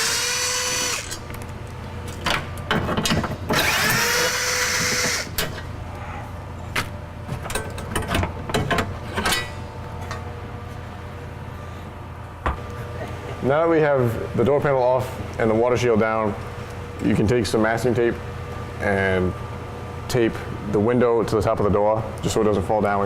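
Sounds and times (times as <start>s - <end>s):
cordless drill whining: 0.0s - 1.2s, 3.6s - 5.3s.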